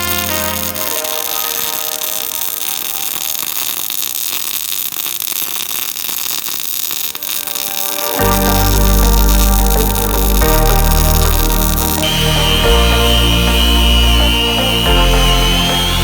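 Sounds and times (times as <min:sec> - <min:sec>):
music: 0:00.0 - 0:02.9, 0:07.2 - 0:16.0
welding arc crackling hiss: 0:00.0 - 0:16.0.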